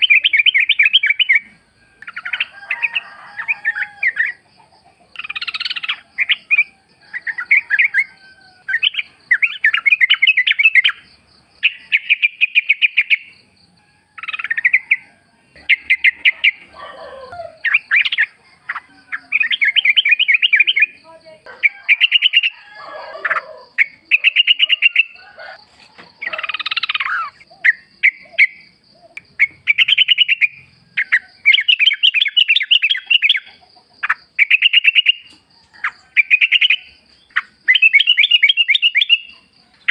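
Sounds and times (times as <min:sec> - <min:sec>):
bird singing bubbly phrases: 0:00.0 - 0:01.5, 0:08.7 - 0:11.0, 0:11.6 - 0:13.4, 0:15.6 - 0:21.1, 0:23.2 - 0:25.2, 0:26.2 - 0:33.6, 0:36.2 - 0:39.4.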